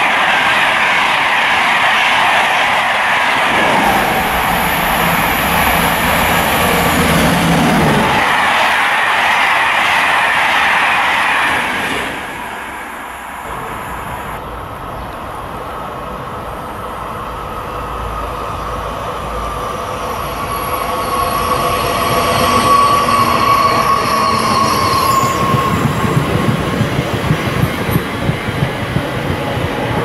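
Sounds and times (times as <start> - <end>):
train whine: 0.0 - 30.0
train wheels clattering over rail joints: 24.8 - 30.0.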